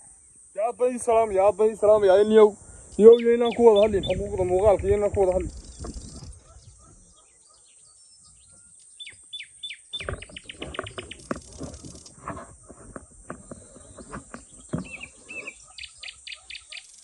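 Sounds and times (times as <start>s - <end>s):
steady high hiss: 0.0s - 6.4s
birds chirping: 0.0s - 17.0s
sharp bird notes and clicks: 2.9s - 12.2s, 12.8s - 17.0s.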